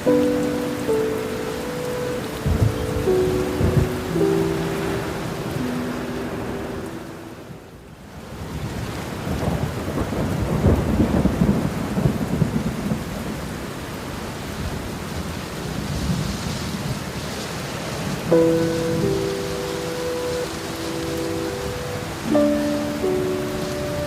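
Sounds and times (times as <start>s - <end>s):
thunder rumbling: 0.0s - 7.8s, 8.5s - 13.7s
steady rain hiss: 0.0s - 24.0s.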